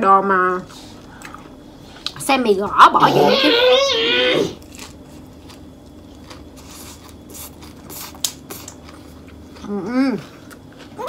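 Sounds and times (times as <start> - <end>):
wet chewing with small crunches: 4.6 - 11.0.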